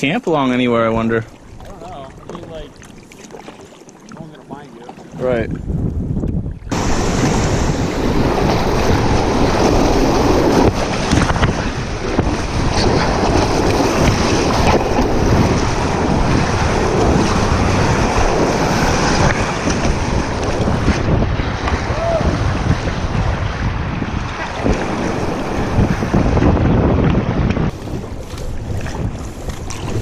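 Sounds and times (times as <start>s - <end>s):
wind buffeting microphone: 0.6s - 3.0s, 4.2s - 30.0s
whitewater rushing: 21.7s - 22.7s.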